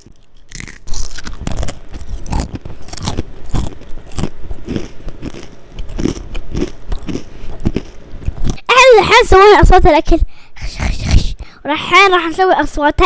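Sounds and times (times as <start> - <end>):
crunching and chewing cornflakes: 0.0 - 8.6.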